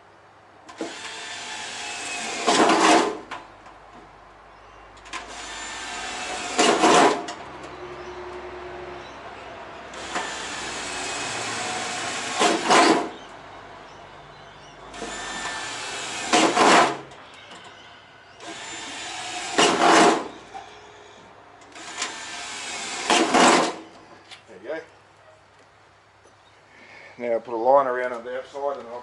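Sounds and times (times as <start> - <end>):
power drill drilling: 0.7 - 3.2, 5.1 - 7.3, 9.9 - 13.1, 14.9 - 17.1, 18.4 - 20.4, 21.7 - 23.8.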